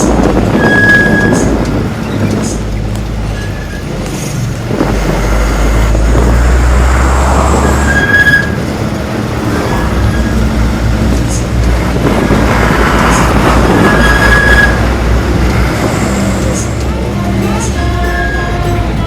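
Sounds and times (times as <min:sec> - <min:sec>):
truck diesel engine rumbling: 0:00.0 - 0:19.0
short high squeal: 0:00.5 - 0:02.6, 0:07.5 - 0:08.6, 0:09.5 - 0:10.4, 0:13.1 - 0:14.9.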